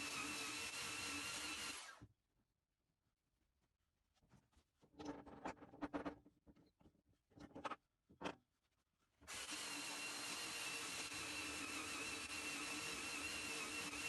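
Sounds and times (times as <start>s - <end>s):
power tool whining: 0.0s - 2.0s, 9.3s - 14.0s.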